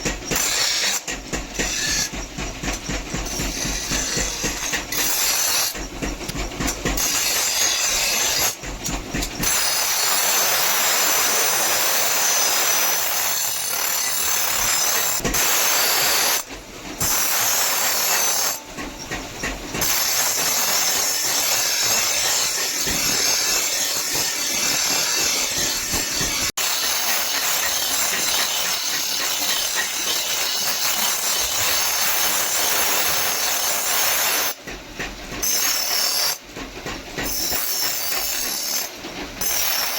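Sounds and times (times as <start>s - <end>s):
power grinder grinding steel: 7.0s - 8.6s, 9.4s - 18.6s, 19.8s - 34.6s, 37.3s - 39.9s.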